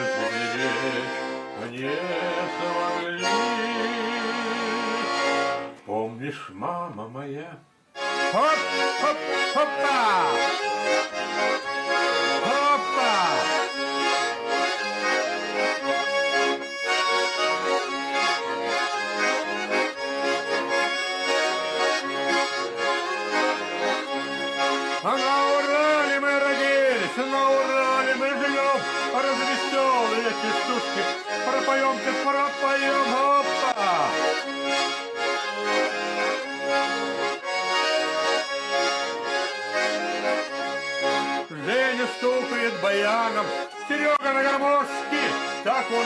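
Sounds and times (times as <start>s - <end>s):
person singing verses: 0.0s - 5.2s, 12.4s - 13.7s, 25.1s - 34.4s
accordion music: 0.0s - 46.0s.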